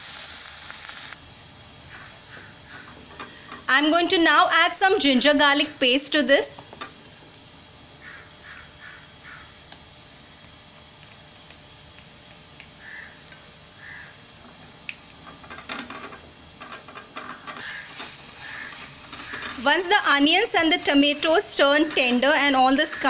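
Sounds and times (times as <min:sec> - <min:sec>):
vegetables sizzling in oil: 0:00.0 - 0:01.2, 0:17.3 - 0:23.0
crow cawing: 0:01.9 - 0:02.9, 0:08.0 - 0:09.6, 0:12.8 - 0:13.2, 0:13.8 - 0:14.2, 0:17.6 - 0:19.5.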